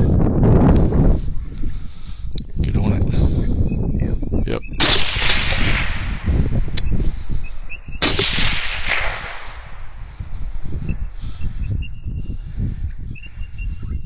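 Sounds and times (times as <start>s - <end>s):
gunshot: 4.8s - 10.2s
low rumble: 4.8s - 11.9s
sharp click: 6.7s - 9.7s.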